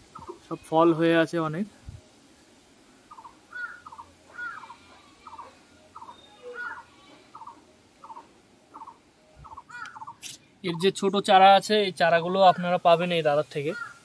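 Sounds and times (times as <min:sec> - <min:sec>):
bird calling short notes: 0:03.1 - 0:10.4.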